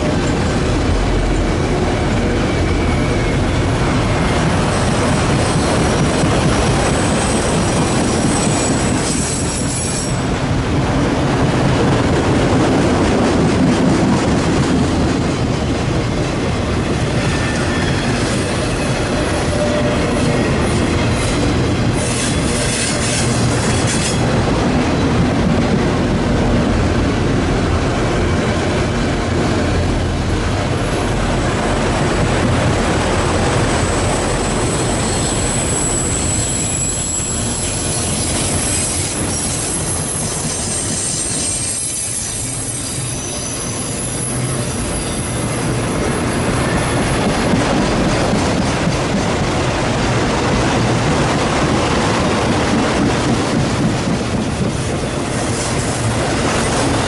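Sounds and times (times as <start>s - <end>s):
train wheels rumbling on rail: 0.0s - 57.0s
high-pitched wheel squeal: 6.9s - 10.2s, 17.2s - 21.4s, 33.8s - 47.4s.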